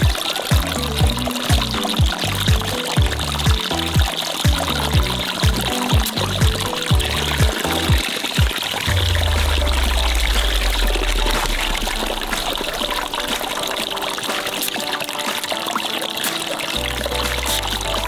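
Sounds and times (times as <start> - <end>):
deep bass tone from music: 0.0 - 8.0, 8.9 - 12.3
soda fizzing: 0.0 - 18.0.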